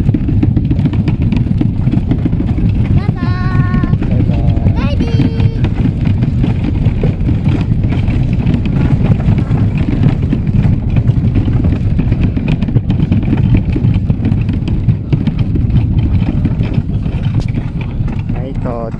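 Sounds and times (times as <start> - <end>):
vehicle rumble from on board: 0.0 - 18.9.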